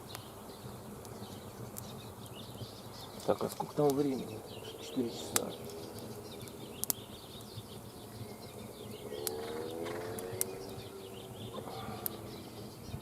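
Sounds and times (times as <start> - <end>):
small birds chirping: 0.0 - 13.0
sharp clicks: 6.8 - 7.0, 9.2 - 10.5.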